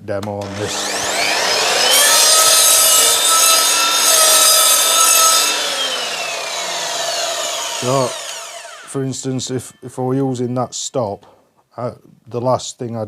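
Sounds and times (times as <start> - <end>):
mitre saw motor whine: 0.4 - 9.3
saw blade cutting wood: 0.4 - 9.8.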